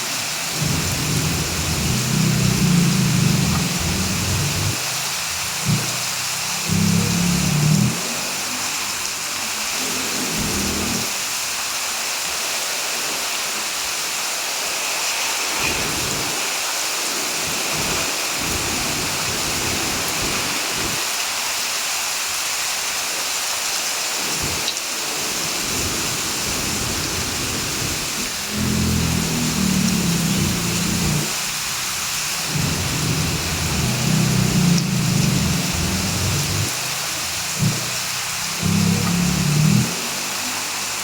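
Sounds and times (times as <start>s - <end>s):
heavy rain falling: 0.0s - 41.0s
low rumbles: 0.6s - 4.8s, 28.4s - 31.7s, 32.4s - 36.7s, 37.5s - 37.9s, 38.6s - 39.9s.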